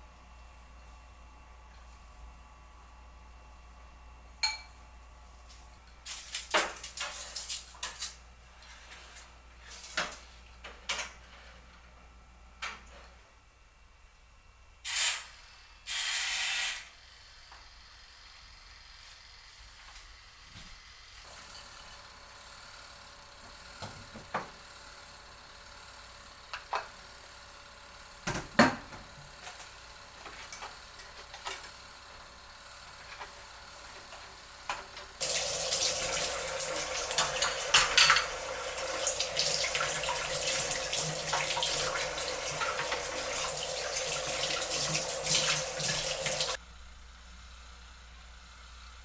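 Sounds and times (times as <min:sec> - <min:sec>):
dishes clinking: 0:04.4 - 0:04.8, 0:37.2 - 0:38.4
tap water running into sink: 0:35.2 - 0:46.6.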